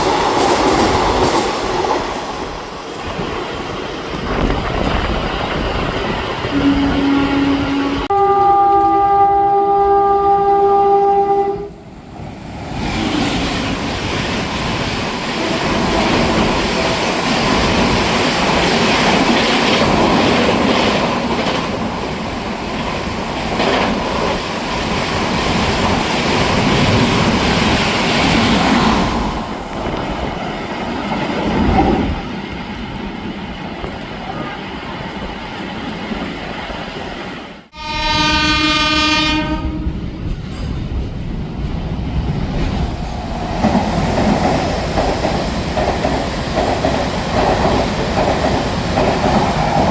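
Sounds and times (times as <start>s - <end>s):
train passing with rumble: 0.0s - 49.9s
locomotive horn blast: 6.5s - 11.8s, 37.7s - 40.0s.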